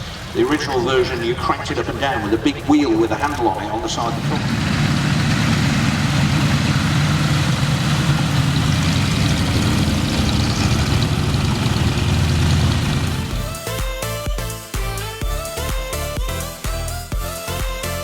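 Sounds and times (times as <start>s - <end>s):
propeller aircraft engine drone: 0.0s - 14.2s
music: 12.8s - 18.0s.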